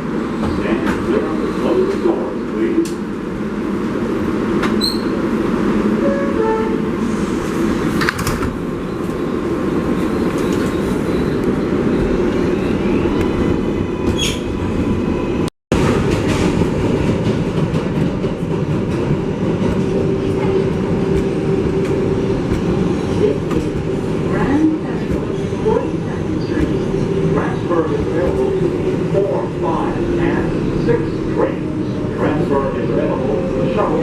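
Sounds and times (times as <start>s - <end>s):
subway train rumble: 0.0s - 34.0s.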